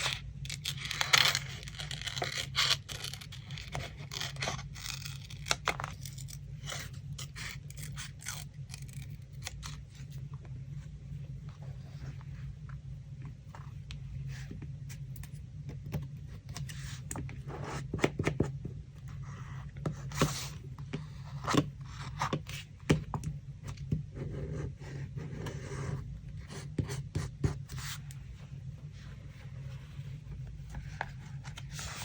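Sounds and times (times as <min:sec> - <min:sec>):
steady low hum: 0:00.0 - 0:32.0
paper rubbing and rustling: 0:28.9 - 0:32.0.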